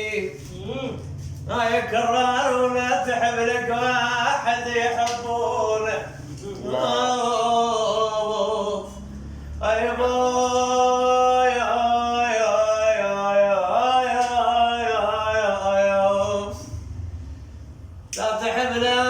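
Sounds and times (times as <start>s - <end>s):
man singing unaccompanied: 0.0s - 16.7s, 18.1s - 19.0s
man breathing: 9.0s - 9.6s.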